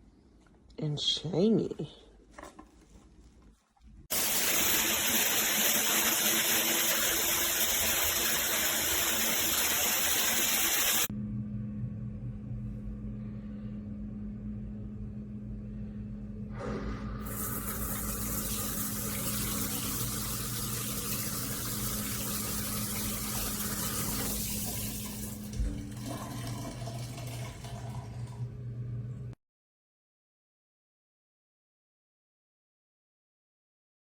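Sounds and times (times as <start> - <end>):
water pouring from shower head: 4.1 - 11.1, 17.2 - 28.4
steady low hum: 11.1 - 23.8.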